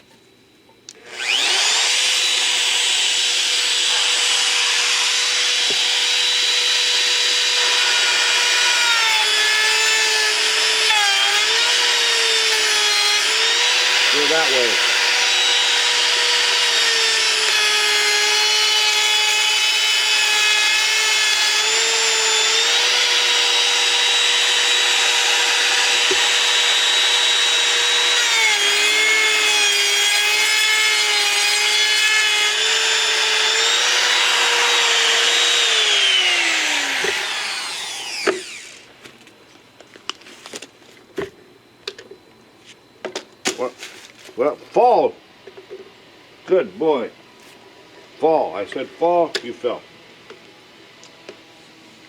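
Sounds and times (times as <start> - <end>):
router whining: 0.9 - 39.2.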